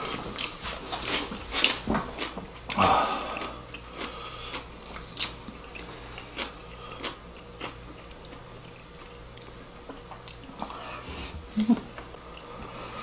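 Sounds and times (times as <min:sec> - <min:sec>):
wet mouth chewing and smacking: 0:00.4 - 0:10.7.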